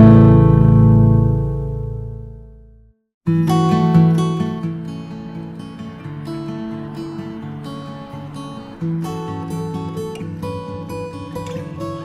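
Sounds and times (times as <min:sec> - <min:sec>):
strummed acoustic guitar music: 0:00.0 - 0:02.6, 0:03.3 - 0:12.0.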